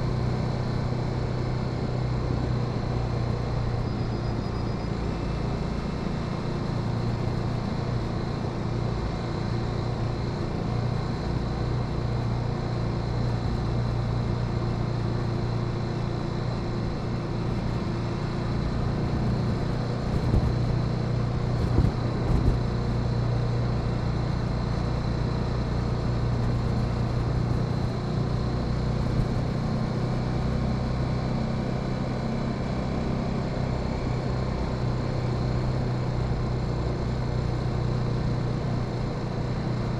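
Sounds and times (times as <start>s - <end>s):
motorcycle engine running: 9.9s - 39.9s.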